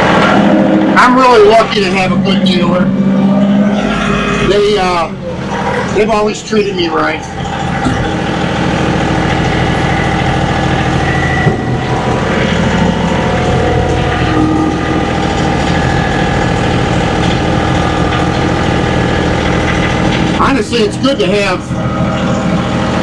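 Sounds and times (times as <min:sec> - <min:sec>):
faint high whine: 0:00.0 - 0:23.0
tractor diesel engine drone: 0:00.0 - 0:23.0.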